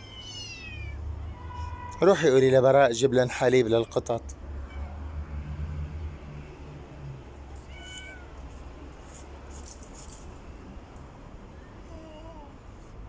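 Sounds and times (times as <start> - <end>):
kitten mewing: 7.6 - 8.3.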